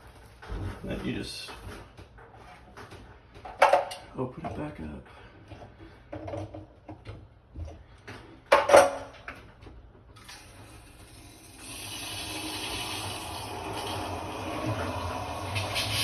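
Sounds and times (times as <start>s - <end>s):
water rushing through pipe: 10.2s - 16.0s.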